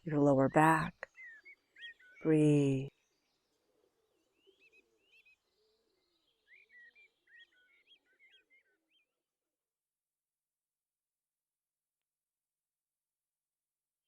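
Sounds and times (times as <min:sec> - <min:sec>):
faint bird chirping: 0:00.0 - 0:09.3.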